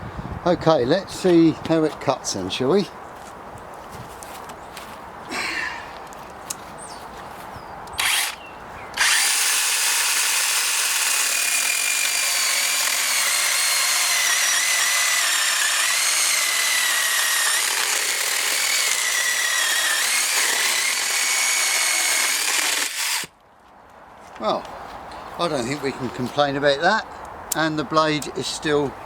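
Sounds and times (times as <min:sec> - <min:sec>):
battery chainsaw cutting wood: 0:08.0 - 0:08.4, 0:09.0 - 0:23.3.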